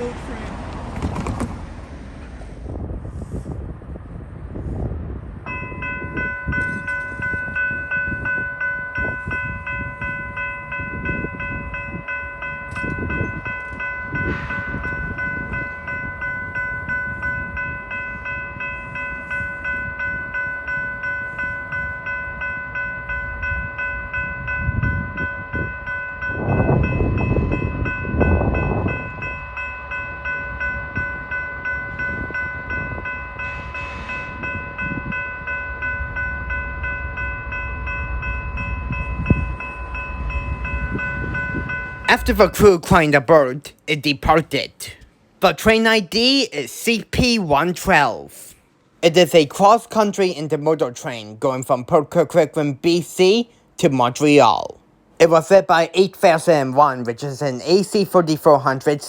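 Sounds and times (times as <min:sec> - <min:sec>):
train rumble and wheel clicks: 0:00.0 - 0:03.0, 0:21.7 - 0:43.0
level crossing warning bell: 0:05.4 - 0:59.0.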